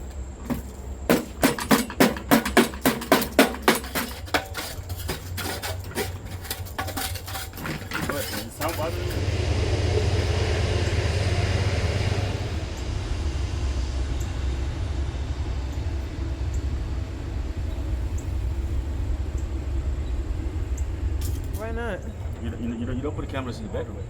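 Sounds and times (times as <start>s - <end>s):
hiss: 0.0s - 22.4s
low rumble: 6.3s - 24.0s.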